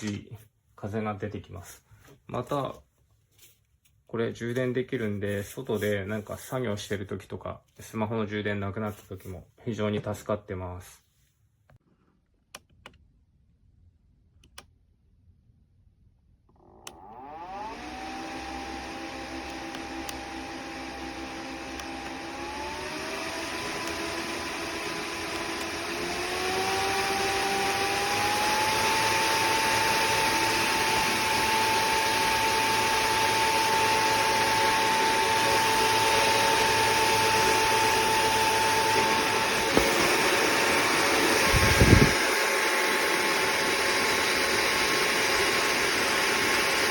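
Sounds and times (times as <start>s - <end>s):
small fan whirring: 16.6s - 46.9s.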